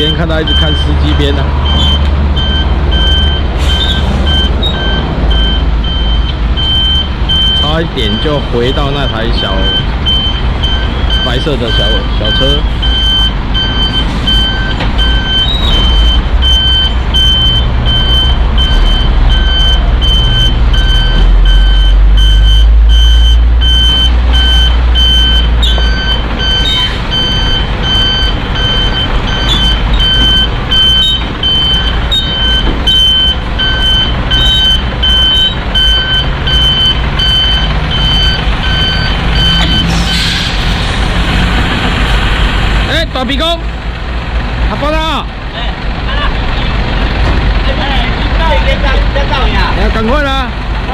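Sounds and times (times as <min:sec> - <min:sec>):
truck reversing alarm beeps: 0:00.0 - 0:40.6
diesel engine rumble: 0:00.0 - 0:50.9.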